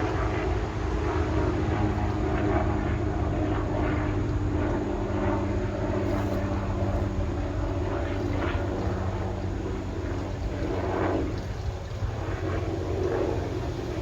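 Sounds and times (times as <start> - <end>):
engine-like drone: 0.0 - 14.0.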